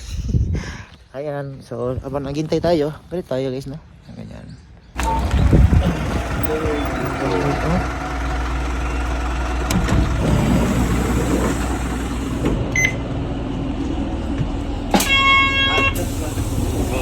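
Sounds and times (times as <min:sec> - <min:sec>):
short electronic beep: 0:05.0 - 0:05.5
bus engine rumbling: 0:05.0 - 0:17.0.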